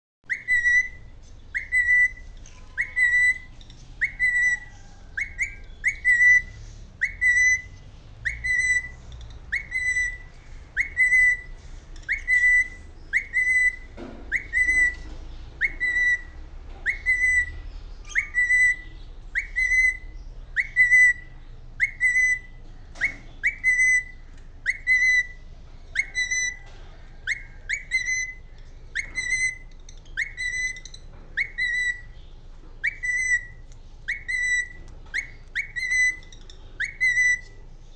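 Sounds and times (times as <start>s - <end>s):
bird whistled call: 0.2s - 32.2s, 32.8s - 37.6s.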